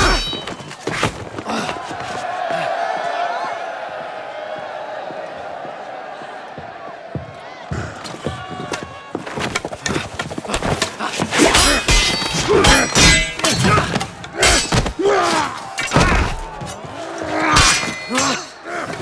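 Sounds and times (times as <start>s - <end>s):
sword strikes and thuds: 0.0s - 1.3s, 10.5s - 16.6s, 17.5s - 18.5s.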